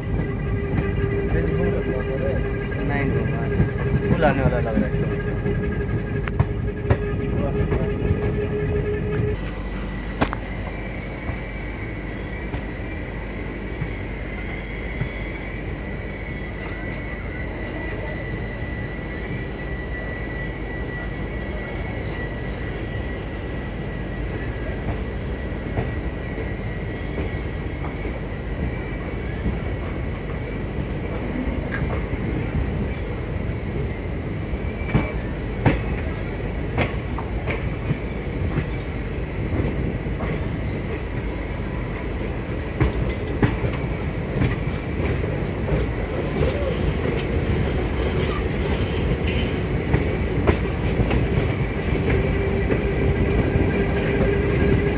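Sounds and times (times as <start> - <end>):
train wheels rumbling on rails: 0.0 - 54.9
sharp clicks of train wheels: 34.9 - 38.8, 41.9 - 54.9.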